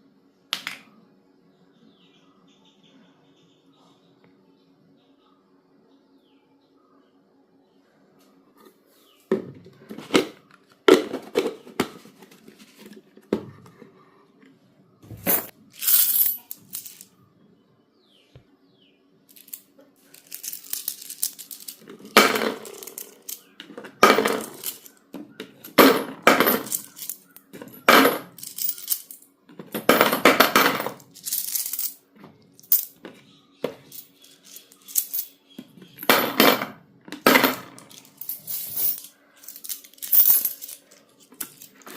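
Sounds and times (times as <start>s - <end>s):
clay containers clinking: 9.3s - 13.9s, 15.1s - 17.1s, 19.3s - 41.9s.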